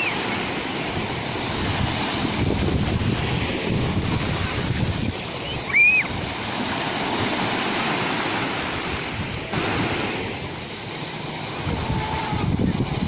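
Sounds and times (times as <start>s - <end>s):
sea waves breaking: 0.0s - 13.0s
high whistle-like call: 5.4s - 6.1s.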